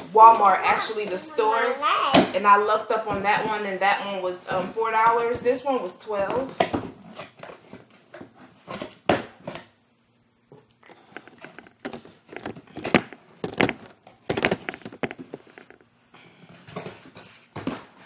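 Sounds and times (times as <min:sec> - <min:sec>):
cardboard packaging knocks and rustles: 0:11.2 - 0:15.8, 0:16.7 - 0:18.0.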